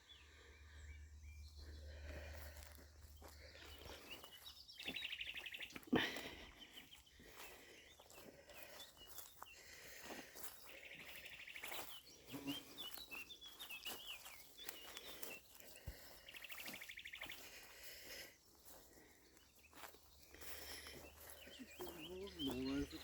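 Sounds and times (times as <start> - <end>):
high bird chirps: 3.5 - 6.0, 10.5 - 17.5, 19.4 - 23.0.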